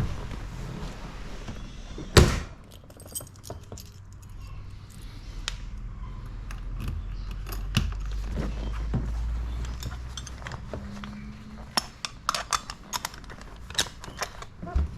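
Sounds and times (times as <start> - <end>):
keys jingling and clicking: 2.6 - 5.2, 6.5 - 8.3, 9.5 - 11.1.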